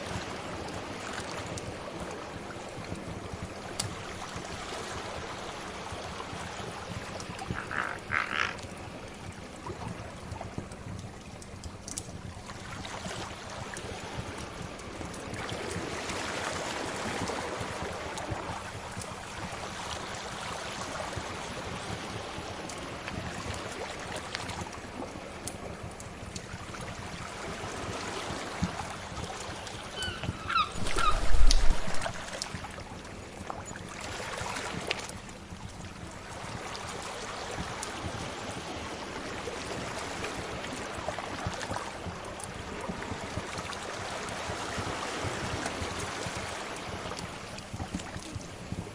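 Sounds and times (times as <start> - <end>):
sea waves washing ashore: 0.0 - 48.9
fire crackling: 30.8 - 32.6.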